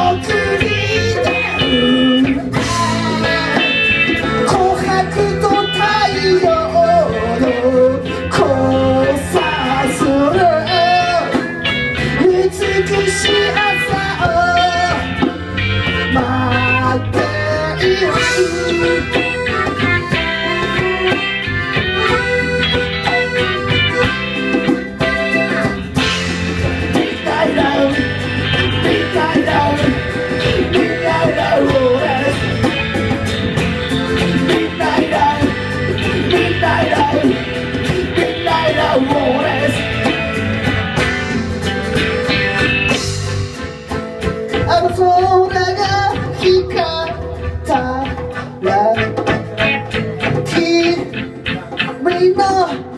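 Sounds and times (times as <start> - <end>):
person singing: 0.0 - 24.2, 26.0 - 40.2, 44.5 - 52.9
drums: 0.0 - 52.9
guitar: 0.0 - 52.9.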